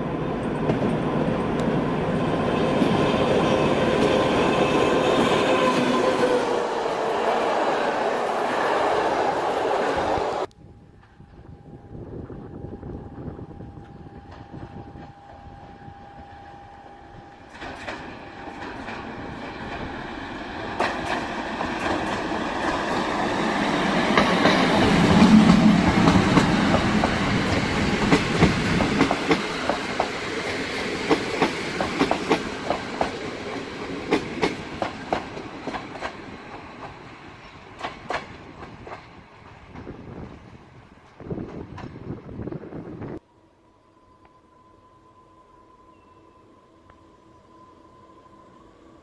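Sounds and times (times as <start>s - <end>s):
train rumbling past: 0.0s - 49.0s
wheels clacking over rail joints: 17.4s - 42.1s.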